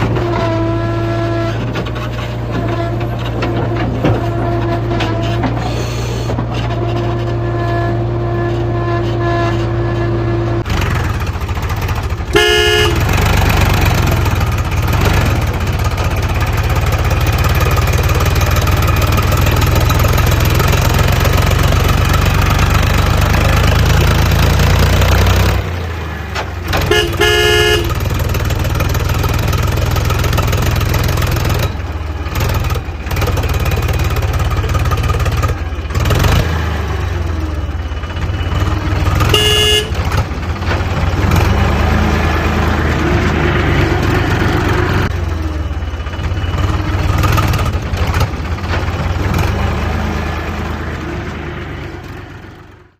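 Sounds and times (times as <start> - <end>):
heavy vehicle engine running: 0.0 - 52.9
vehicle horn honking: 12.3 - 13.2, 26.8 - 28.2, 39.2 - 40.2.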